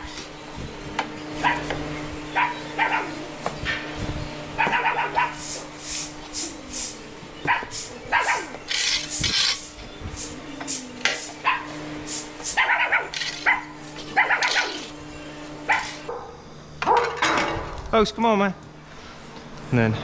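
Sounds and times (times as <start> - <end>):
dog barking and yipping: 1.4 - 3.2, 4.6 - 5.6, 7.4 - 9.5, 11.4 - 11.8, 12.5 - 15.0, 15.7 - 17.2.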